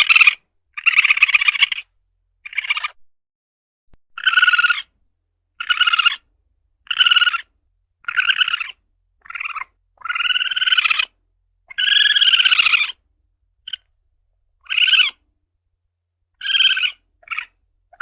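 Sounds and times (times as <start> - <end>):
civet calling short cries: 0.0 - 3.0, 4.2 - 4.9, 5.6 - 13.0, 13.6 - 13.9, 14.6 - 15.2, 16.4 - 18.0.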